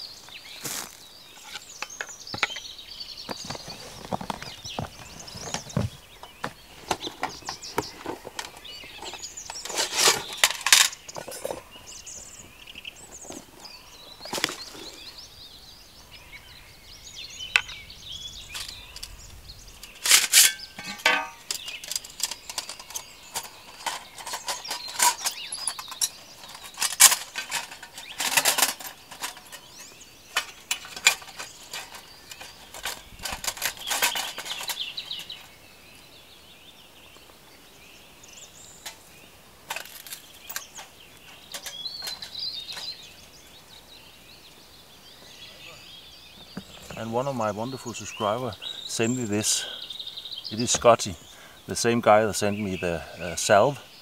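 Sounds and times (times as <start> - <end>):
leather pouch rustling: 3.3 - 10.4
metal plates clicking and clinking: 6.9 - 11.7, 19.8 - 35.5, 39.7 - 43.0.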